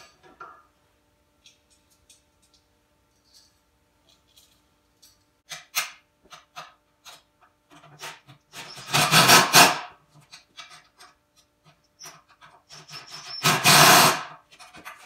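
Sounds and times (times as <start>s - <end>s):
tool rasping on nut: 12.7s - 14.3s.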